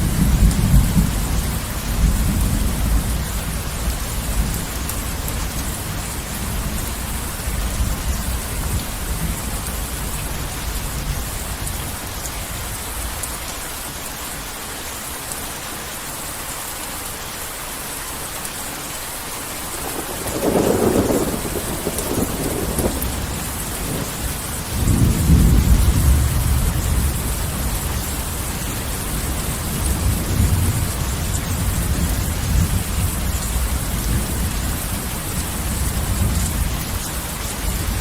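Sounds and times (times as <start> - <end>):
heavy rain falling: 0.0 - 38.0
thunder rumbling: 19.6 - 38.0
sharp thunderclap: 19.8 - 28.5.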